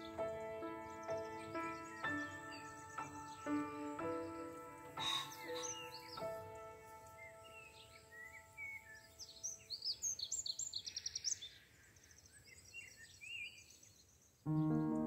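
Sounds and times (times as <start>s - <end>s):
background music held notes: 0.0s - 8.8s, 14.5s - 15.0s
piano music: 0.0s - 8.9s, 14.5s - 15.0s
wild birds chirping and calling: 0.0s - 13.3s.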